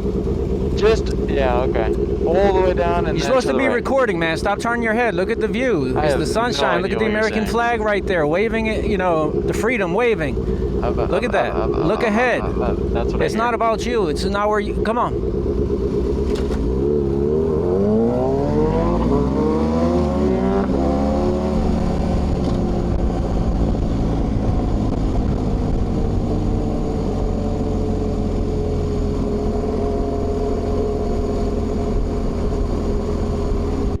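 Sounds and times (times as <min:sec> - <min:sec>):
motorcycle engine accelerating: 0:00.0 - 0:34.0
wind rushing over microphone: 0:17.4 - 0:34.0.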